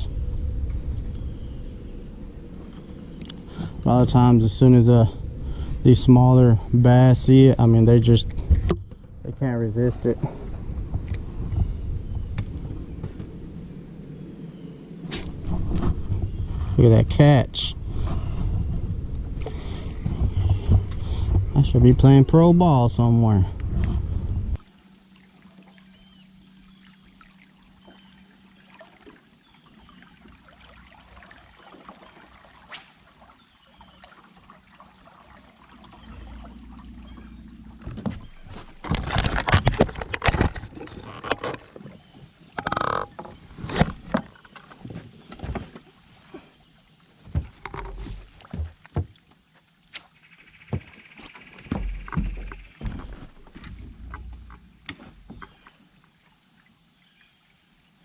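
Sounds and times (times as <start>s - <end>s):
faint steady hum: 0.0s - 58.0s
water noise: 0.0s - 58.0s.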